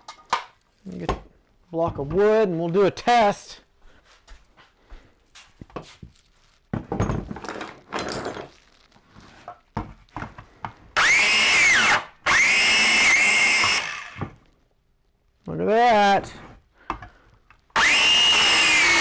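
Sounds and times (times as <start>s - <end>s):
biscuit joiner motor whine: 11.0s - 14.3s, 17.8s - 19.0s.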